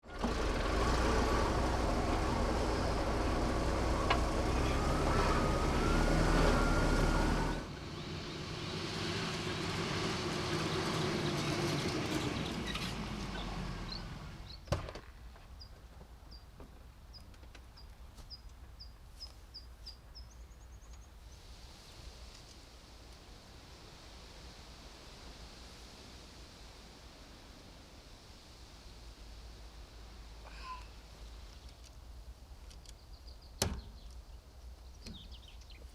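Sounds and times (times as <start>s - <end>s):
truck engine running: 0.0s - 14.6s
birds chirping: 12.1s - 14.8s, 32.8s - 35.9s.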